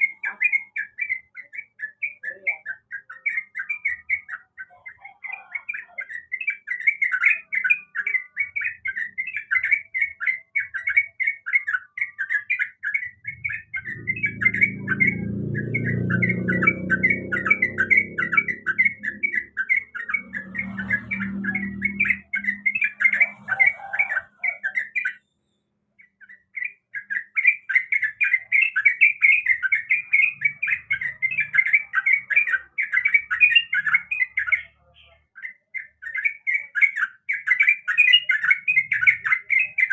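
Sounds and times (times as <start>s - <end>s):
bird singing bright chattering notes: 0.0s - 39.9s
low hum: 13.4s - 19.6s.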